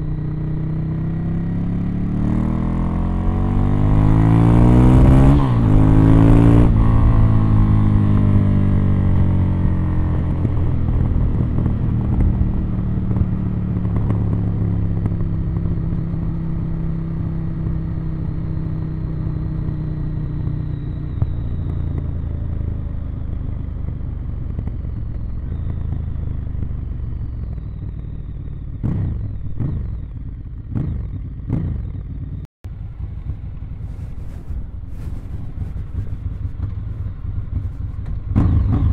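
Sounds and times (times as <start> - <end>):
motorcycle engine running: 0.0 - 38.9
motorcycle throttle blips: 0.0 - 38.9.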